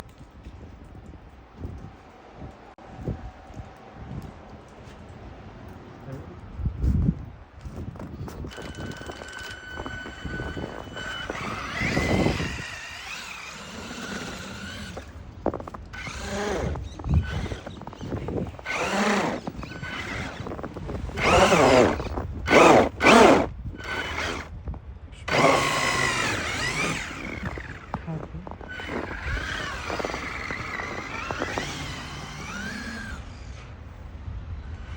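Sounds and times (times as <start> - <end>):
rc car electric motor whining: 8.5 - 15.1, 16.0 - 24.5, 25.2 - 28.0, 28.6 - 33.8.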